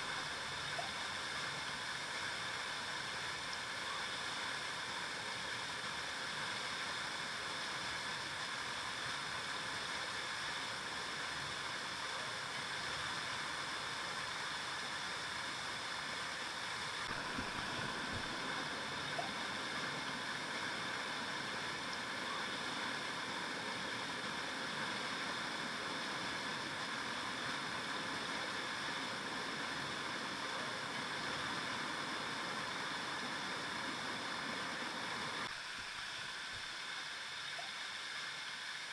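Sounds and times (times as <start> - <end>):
river water flowing over rocks: 15.8 - 37.4.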